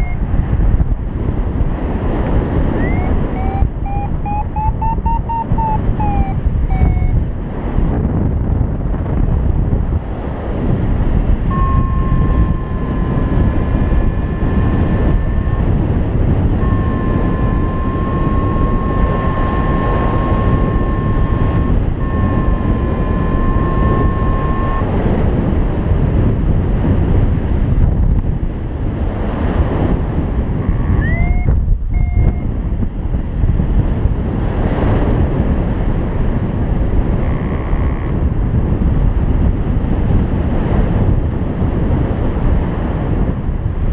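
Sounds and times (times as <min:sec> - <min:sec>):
steady electronic tone: 0:00.0 - 0:00.3, 0:02.8 - 0:07.2, 0:11.4 - 0:25.3, 0:30.6 - 0:32.5
wind buffeting microphone: 0:00.0 - 0:43.9
short rising chirp: 0:02.8 - 0:07.2.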